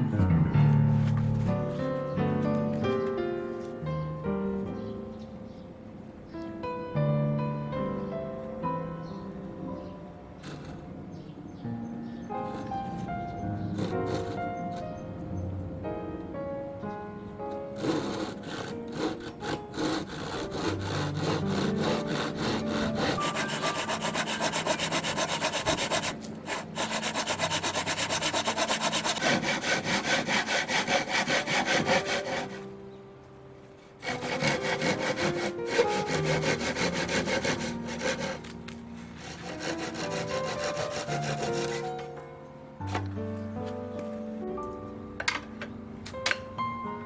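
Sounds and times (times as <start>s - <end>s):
hand saw cutting wood: 10.4s - 10.9s, 12.4s - 14.9s, 17.7s - 32.7s, 34.0s - 42.1s.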